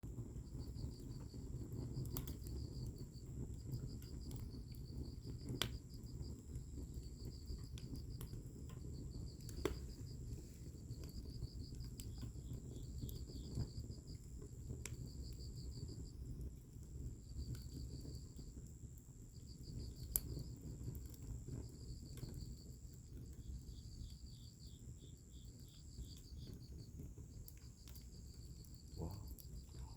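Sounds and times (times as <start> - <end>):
wood fire burning and popping: 0.0 - 29.9
crickets chirping: 0.4 - 16.4, 17.1 - 29.9
high insect drone: 28.3 - 29.9.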